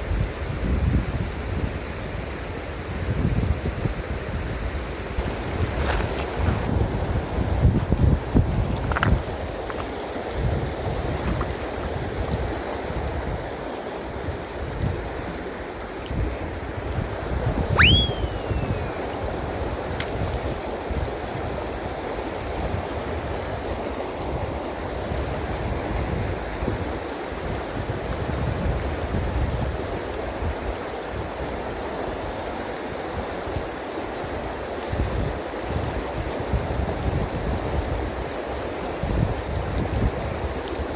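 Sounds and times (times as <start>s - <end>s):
rising and falling whistle: 17.7s - 19.2s.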